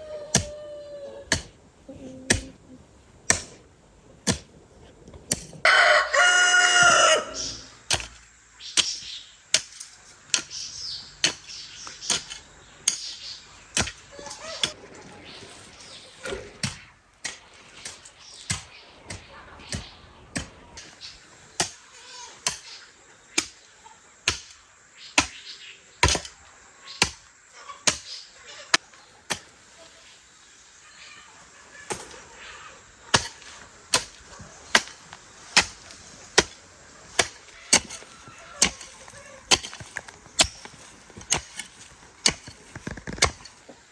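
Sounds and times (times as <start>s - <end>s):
sharp chopping strikes: 26.0s - 26.4s, 37.2s - 43.5s.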